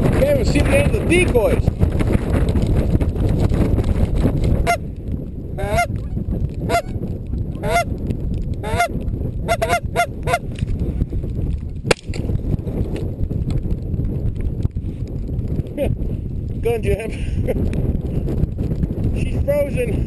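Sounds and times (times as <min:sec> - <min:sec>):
wind buffeting microphone: 0:00.0 - 0:20.0
goose honking: 0:07.6 - 0:07.9, 0:08.6 - 0:08.9, 0:09.5 - 0:10.4
sharp crack: 0:11.8 - 0:13.6.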